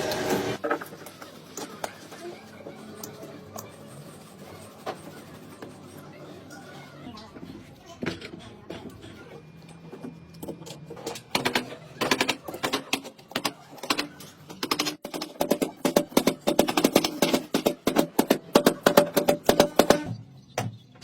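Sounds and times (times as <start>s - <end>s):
rapid clicks and taps: 10.3s - 20.2s.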